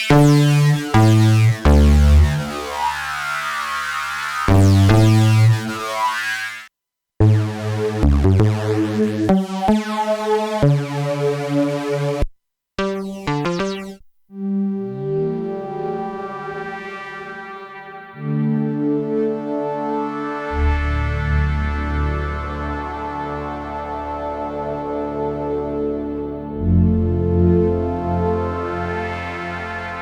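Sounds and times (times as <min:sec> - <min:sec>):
synthesizer playing chords: 0:00.0 - 0:06.6, 0:07.2 - 0:12.2, 0:12.8 - 0:30.0.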